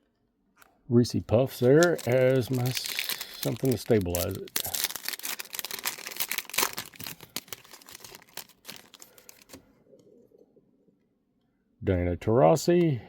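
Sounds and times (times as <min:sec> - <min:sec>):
card pack wrapper crinkling: 0:01.4 - 0:09.6.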